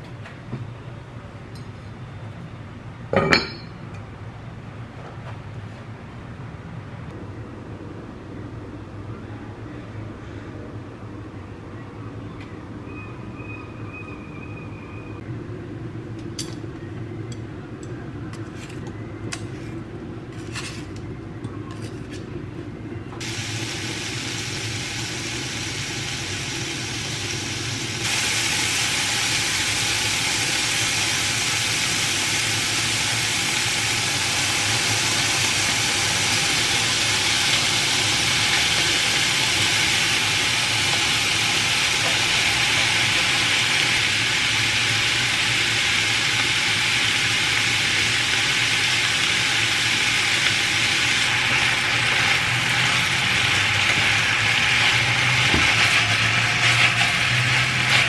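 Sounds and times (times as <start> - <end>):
pork frying in a pan: 23.2 - 58.0.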